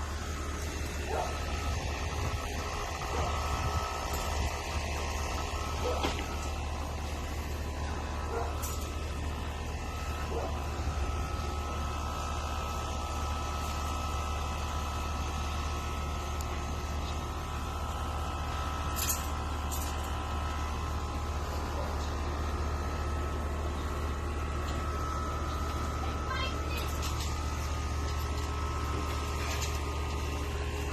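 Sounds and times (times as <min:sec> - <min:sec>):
low mechanical hum: 0:00.0 - 0:30.9.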